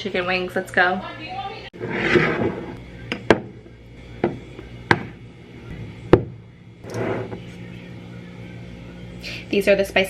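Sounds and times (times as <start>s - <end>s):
knocks on kitchen work surface: 4.2s - 5.1s.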